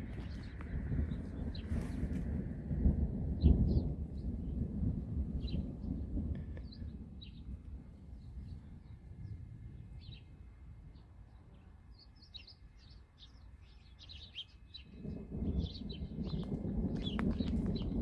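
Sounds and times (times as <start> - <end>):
small birds chirping: 0.0 - 2.1, 6.6 - 18.0
low rumbling noise: 0.0 - 12.0.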